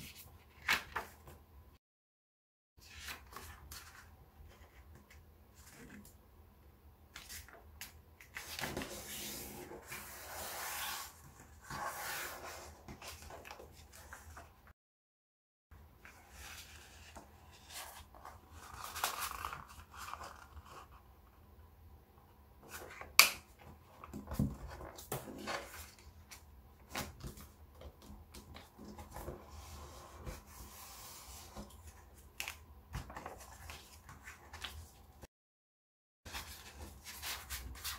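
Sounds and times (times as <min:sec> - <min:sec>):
paper rustling and crinkling: 0:16.7 - 0:20.9.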